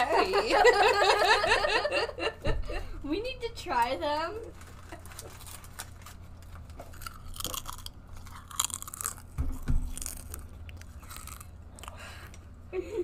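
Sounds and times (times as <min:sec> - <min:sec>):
person crunching chips: 0:04.6 - 0:12.4.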